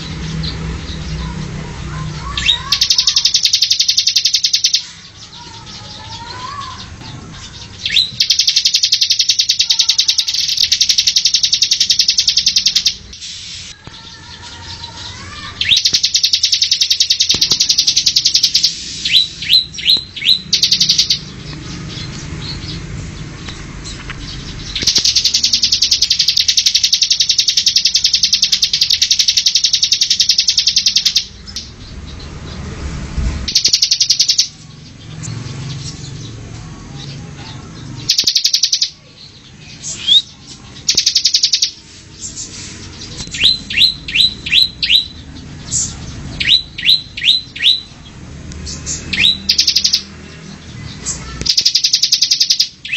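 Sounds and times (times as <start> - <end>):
songbirds buzzing trills: 0.0 - 52.9
quick down-slurred bird chirps: 15.6 - 21.3.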